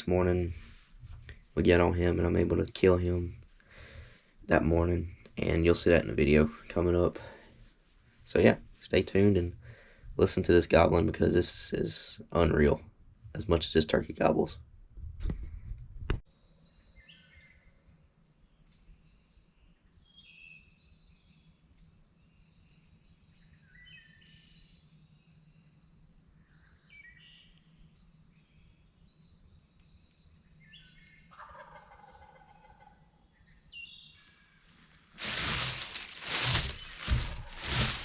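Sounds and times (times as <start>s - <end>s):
songbirds chirping and whistling: 16.3s - 38.0s
wild turkey gobbling: 31.3s - 33.0s.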